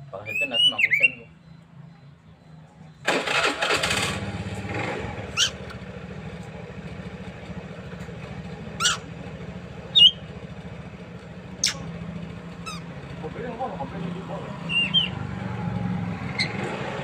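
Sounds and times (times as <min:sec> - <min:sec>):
small engine starting and idling: 0:03.0 - 0:17.0
short bird chirps: 0:11.6 - 0:11.9.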